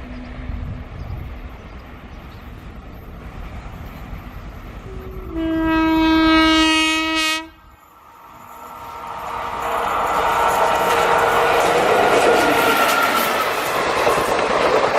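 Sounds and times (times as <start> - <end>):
low rumble of approaching train: 0.0 - 14.9
locomotive air horn blast: 4.9 - 7.7.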